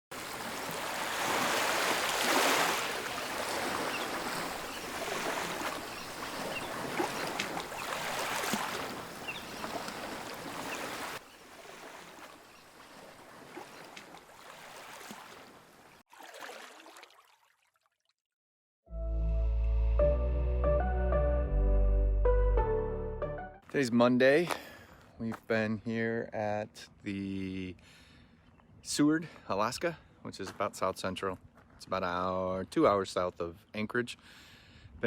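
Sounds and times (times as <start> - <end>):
ocean waves washing on shore: 0.1 - 15.6.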